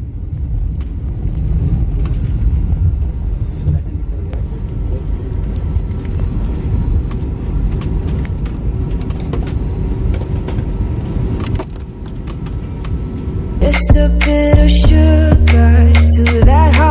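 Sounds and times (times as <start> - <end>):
low rumble inside moving vehicle: 0.0 - 16.9
light clicks and rattles: 4.6 - 13.1.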